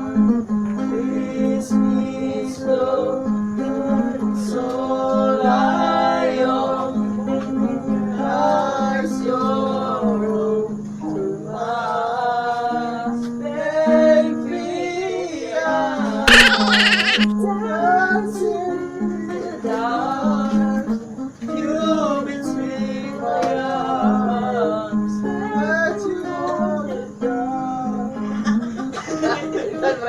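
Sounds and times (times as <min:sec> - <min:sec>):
people singing together: 0:00.0 - 0:30.0
loud burst of noise: 0:16.3 - 0:17.3.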